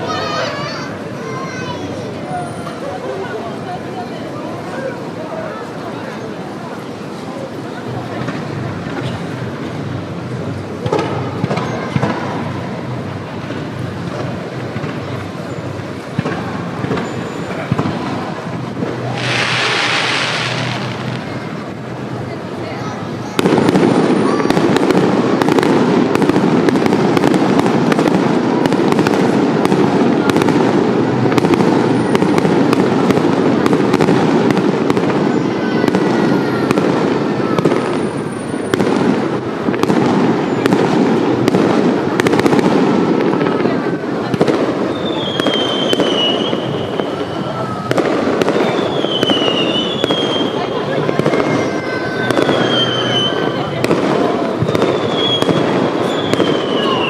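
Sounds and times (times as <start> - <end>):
continuous rumble: 0.0 - 57.0
fireworks bangs and crackling: 0.0 - 57.0
fireworks whistles: 14.8 - 21.7, 31.4 - 43.4, 44.5 - 57.0.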